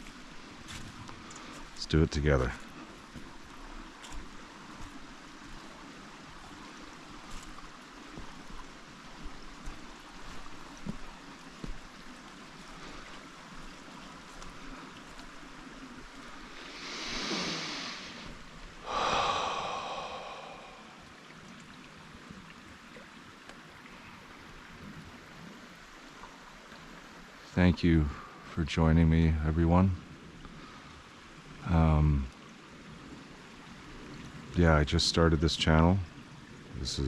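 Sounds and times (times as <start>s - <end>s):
stream rushing: 0.0s - 27.5s
man breathing out hard: 16.7s - 21.2s.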